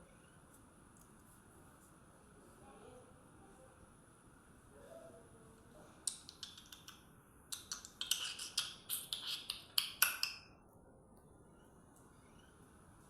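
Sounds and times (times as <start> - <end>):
small birds chirping: 11.5 - 12.8.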